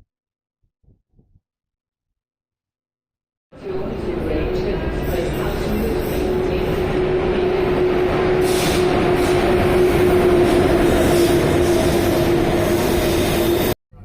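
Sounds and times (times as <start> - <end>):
humming tone: 3.6 - 13.7
train rumbling on rails: 3.6 - 13.8.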